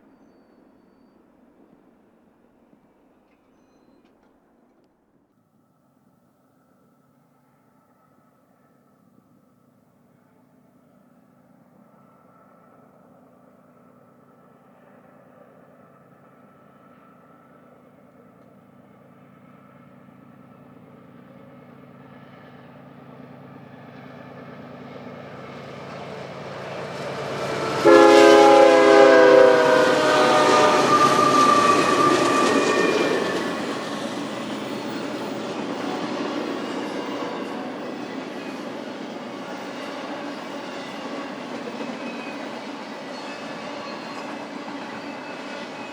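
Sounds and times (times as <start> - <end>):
diesel locomotive engines: 18.7 - 45.9
train air horn blast: 26.6 - 34.4.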